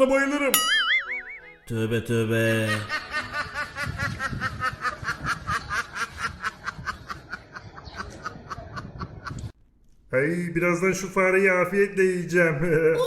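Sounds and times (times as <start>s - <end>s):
rapid snickering laughter: 2.6s - 9.4s.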